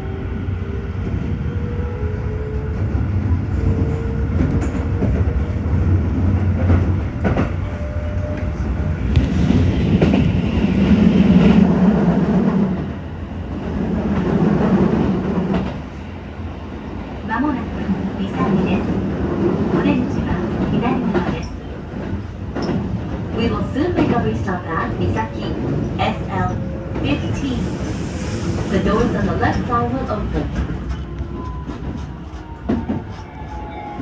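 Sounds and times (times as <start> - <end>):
train running rumble: 0.0 - 34.0.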